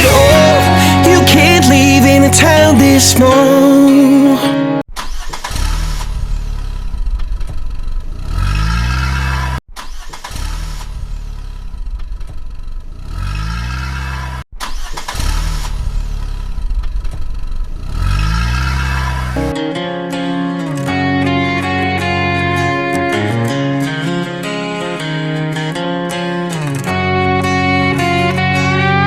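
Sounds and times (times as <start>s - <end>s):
vehicle engine revving: 5.6s - 9.6s, 12.9s - 14.4s, 17.7s - 19.4s.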